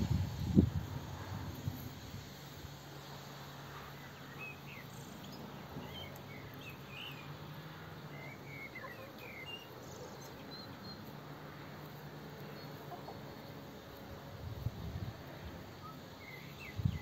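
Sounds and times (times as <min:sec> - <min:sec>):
steady low hum: 0:00.0 - 0:17.0
small birds chirping: 0:03.0 - 0:11.3, 0:15.4 - 0:17.0.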